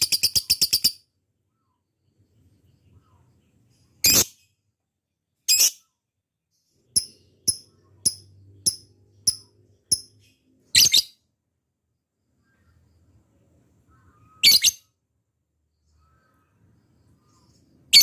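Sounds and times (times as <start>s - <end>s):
lovebird short sharp chirps: 14.2s - 14.9s.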